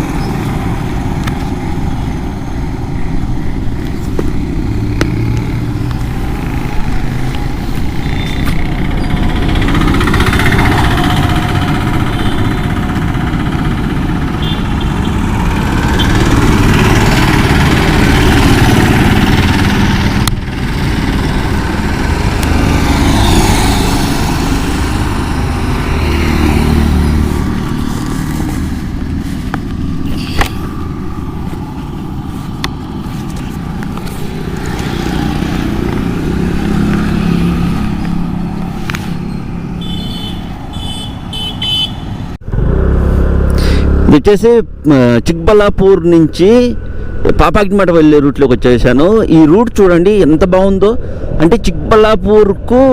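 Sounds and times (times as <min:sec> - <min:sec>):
motorcycle engine running: 0:03.5 - 0:45.1.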